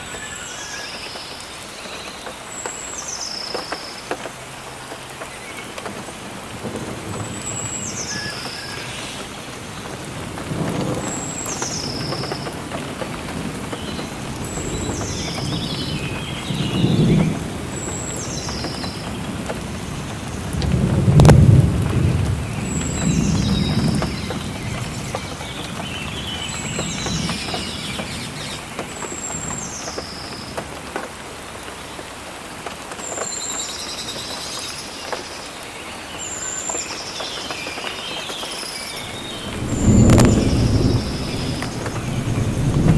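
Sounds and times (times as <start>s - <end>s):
steady rain: 0.0s - 42.9s
thunder rolling: 6.5s - 28.6s, 39.0s - 42.9s.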